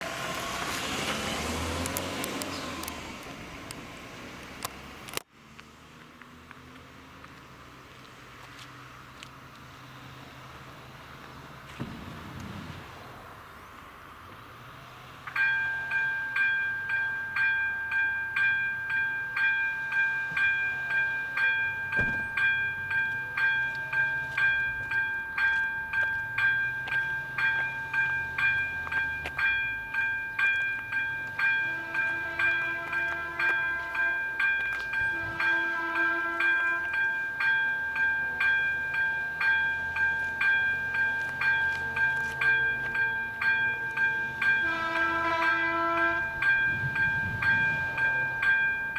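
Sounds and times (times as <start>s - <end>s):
level crossing warning bell ringing: 15.3s - 48.9s.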